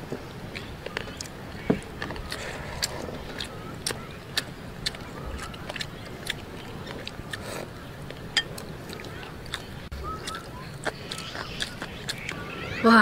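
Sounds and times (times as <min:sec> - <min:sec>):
chewing sticky rice: 0:00.5 - 0:12.8
wet mouth clicks and lip smacks: 0:08.1 - 0:12.4.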